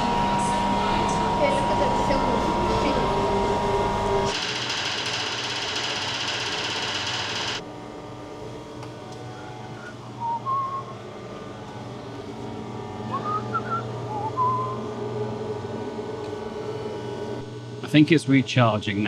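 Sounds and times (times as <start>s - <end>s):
steady low hum: 0.0s - 19.0s
person whistling: 9.7s - 11.0s, 13.0s - 14.9s.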